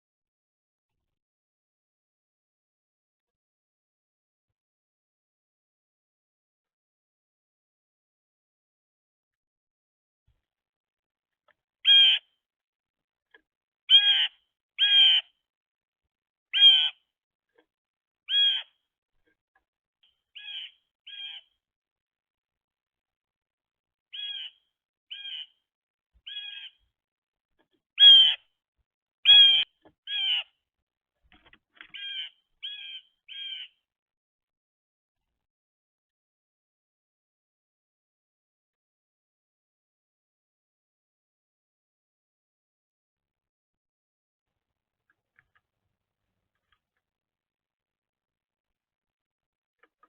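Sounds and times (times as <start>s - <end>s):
blue jay harsh calls: 11.8s - 12.3s, 13.9s - 15.3s, 16.5s - 17.0s, 18.3s - 18.8s, 20.4s - 21.5s, 24.1s - 25.6s, 26.2s - 26.8s, 28.0s - 28.4s, 29.3s - 30.5s, 31.9s - 33.8s.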